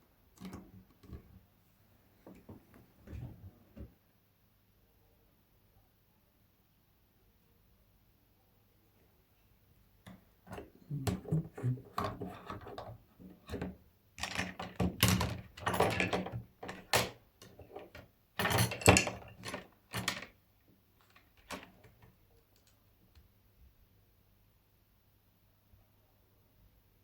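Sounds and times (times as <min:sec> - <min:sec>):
small tools clicking and clattering: 0:10.5 - 0:20.4, 0:21.0 - 0:22.7.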